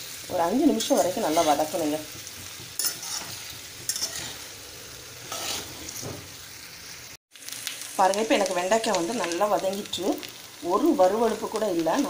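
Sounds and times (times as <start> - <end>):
vegetables sizzling in oil: 0.0 - 12.0
spatula scraping a pan: 0.8 - 6.3.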